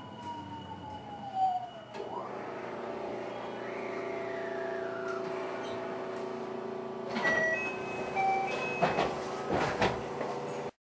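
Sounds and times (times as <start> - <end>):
train whine falling in pitch: 0.0 - 9.2
train equipment humming: 0.0 - 10.7
sliding doors clunking and squeaking: 7.0 - 10.7.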